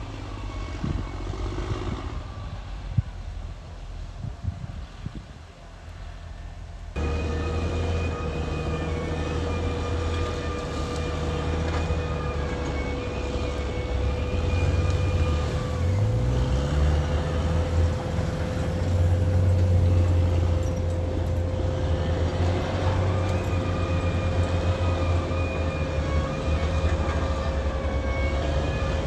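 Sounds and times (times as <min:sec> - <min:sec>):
steady high whine: 0:05.6 - 0:27.2
bulldozer diesel engine revving: 0:07.0 - 0:29.0.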